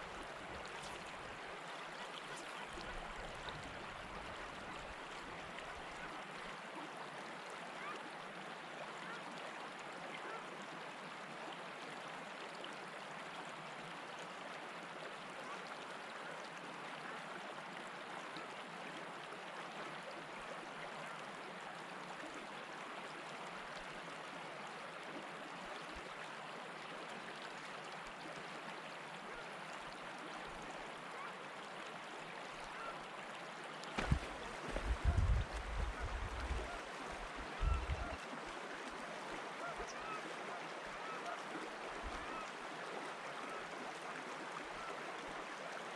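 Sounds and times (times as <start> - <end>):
water rushing: 0.0 - 6.8, 27.2 - 45.9.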